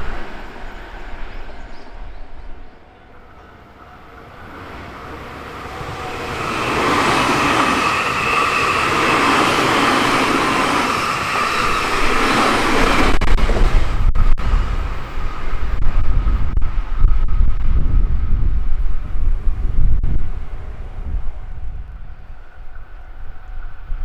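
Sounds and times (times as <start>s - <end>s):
wheel-on-rail noise: 0.0s - 16.5s
electric train passing at speed: 0.0s - 24.0s.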